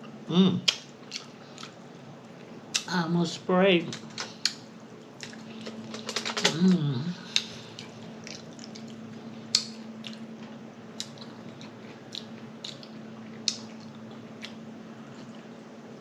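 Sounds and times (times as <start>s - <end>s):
low hum: 0.0s - 16.0s
wet chewing: 0.7s - 2.9s, 4.3s - 6.0s, 7.2s - 10.3s, 10.9s - 15.5s.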